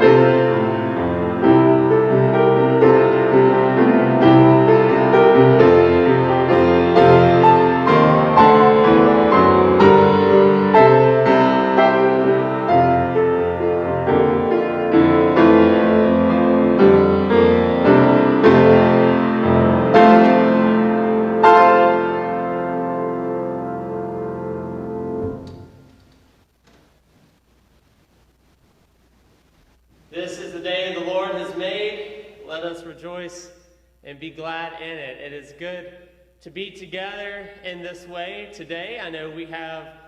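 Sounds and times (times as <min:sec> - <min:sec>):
slow solo piano chords: 0:00.0 - 0:25.9.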